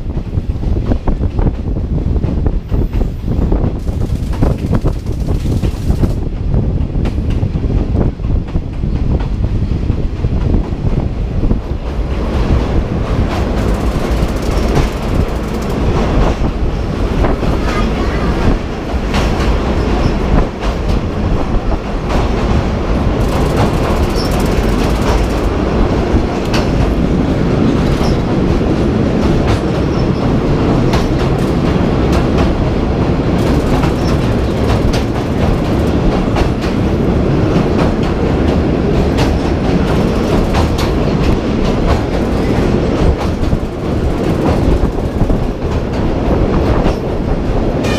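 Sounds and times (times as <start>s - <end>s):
train rumble: 0.0s - 47.9s
wheels clacking over rail joints: 11.8s - 47.9s.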